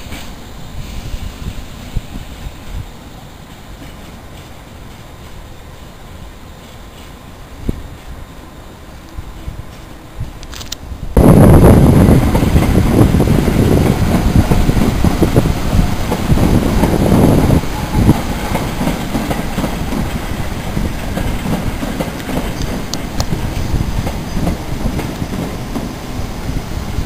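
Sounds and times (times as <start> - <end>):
train running along tracks: 0.0 - 27.0
wheels clicking over rail joints: 3.4 - 5.5, 12.0 - 26.0.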